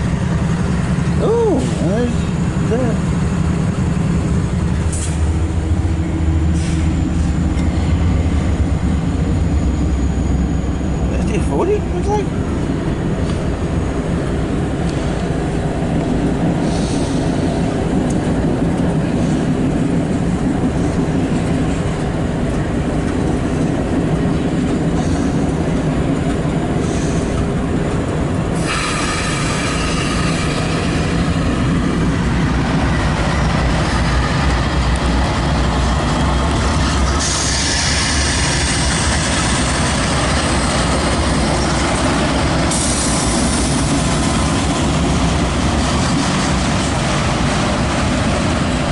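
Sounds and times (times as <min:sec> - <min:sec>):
freight train rumbling past: 0:00.0 - 0:48.9
high hissing wheel squeal: 0:28.6 - 0:31.2, 0:37.1 - 0:39.1.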